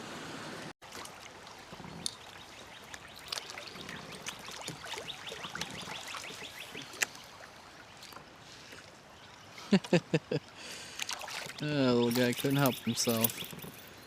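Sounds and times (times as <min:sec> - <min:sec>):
small clicks and splashes: 0:00.8 - 0:09.9, 0:10.8 - 0:13.9
water trickling and dripping: 0:00.8 - 0:14.0
bird chirping: 0:02.1 - 0:07.3, 0:11.5 - 0:14.0.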